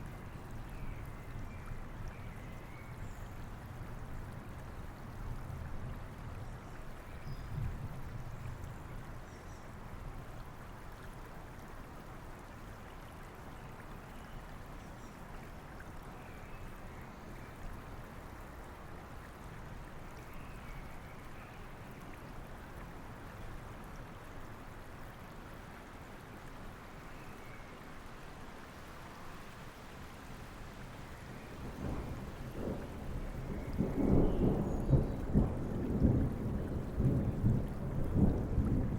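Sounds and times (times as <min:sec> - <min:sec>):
rain: 0:00.0 - 0:38.9
low rumble of thunder: 0:07.3 - 0:09.0, 0:31.3 - 0:38.9
flowing river rushing: 0:21.6 - 0:34.6.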